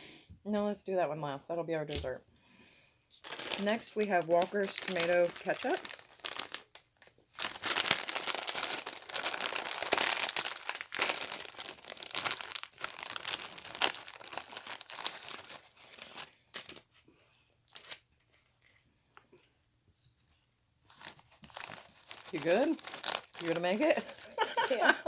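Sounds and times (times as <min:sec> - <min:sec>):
plastic crisp packet crinkling: 0:03.2 - 0:17.0, 0:17.6 - 0:18.8, 0:20.8 - 0:25.0.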